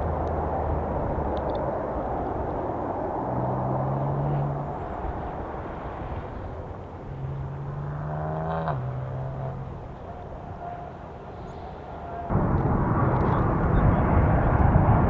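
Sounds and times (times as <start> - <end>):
jet engines rumbling: 0.0 - 8.0, 9.0 - 15.0.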